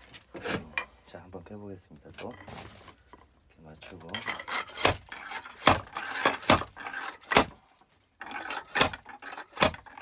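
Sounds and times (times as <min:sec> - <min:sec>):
axe chopping firewood: 0:04.7 - 0:07.6, 0:08.7 - 0:10.0.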